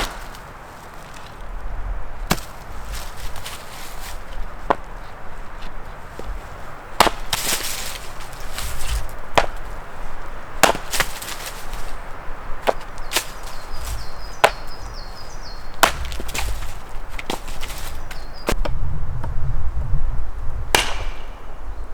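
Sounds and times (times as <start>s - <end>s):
chopping wood strikes: 0.0s - 1.4s, 2.2s - 6.4s, 7.0s - 9.8s, 10.6s - 11.8s, 12.6s - 14.9s, 15.7s - 18.8s, 20.7s - 21.3s.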